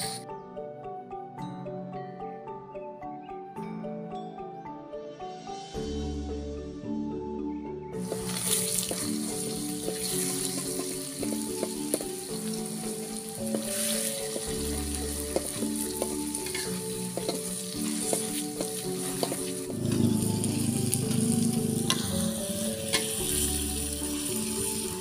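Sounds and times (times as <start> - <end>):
food sizzling in a wok: 0.0 - 0.2, 8.0 - 25.0
soft background music: 0.0 - 25.0
metal spatula scraping pan: 15.4 - 23.6.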